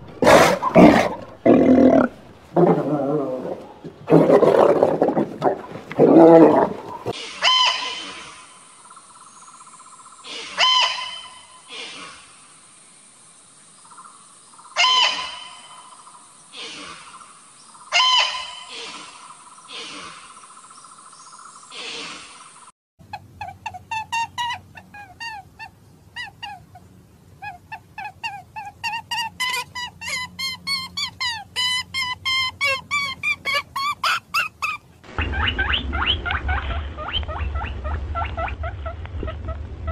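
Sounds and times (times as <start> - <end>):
animal roaring and growling: 0.2 - 7.2
bird calls: 6.8 - 12.1, 13.8 - 39.9
small animal squeaking: 27.4 - 34.8
low steady hum: 35.0 - 39.9.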